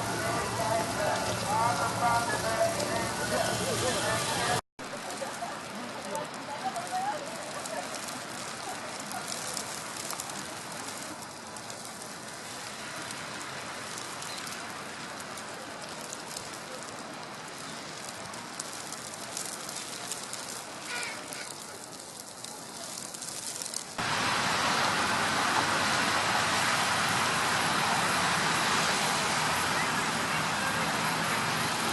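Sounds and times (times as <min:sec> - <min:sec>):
snowstorm hiss: 0:00.0 - 0:31.9
wet snow falling: 0:00.0 - 0:31.9
dense rushing noise: 0:24.0 - 0:31.9.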